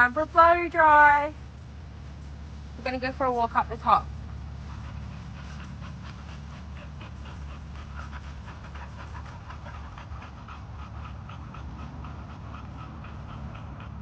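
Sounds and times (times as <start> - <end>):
steady low hum: 0.0 - 14.0
dog panting rapidly: 3.4 - 14.0.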